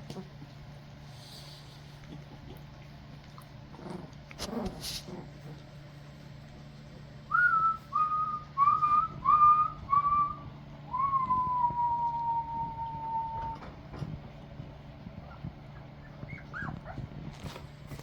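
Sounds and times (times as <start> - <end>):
man whistling: 7.3 - 13.6.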